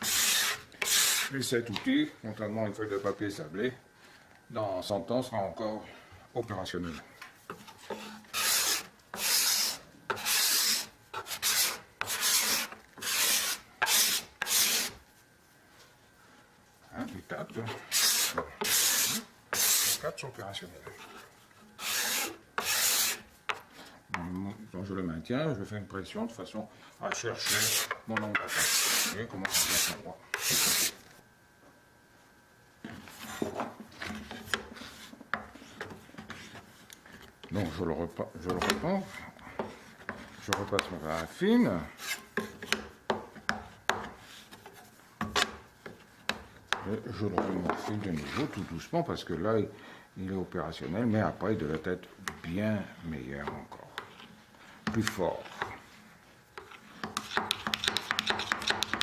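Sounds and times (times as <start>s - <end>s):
card scraper strokes on wood: 0.0s - 1.4s, 7.5s - 15.0s, 17.6s - 20.1s, 20.9s - 23.7s, 27.4s - 31.0s, 56.6s - 59.0s
soft rubbing of metal tools: 5.7s - 24.9s, 26.9s - 31.1s.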